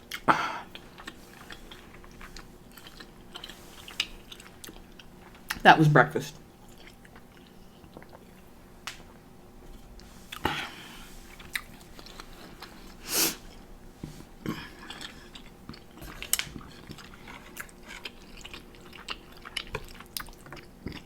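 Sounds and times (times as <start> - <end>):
person chewing food: 0.0 - 5.6, 6.4 - 21.0.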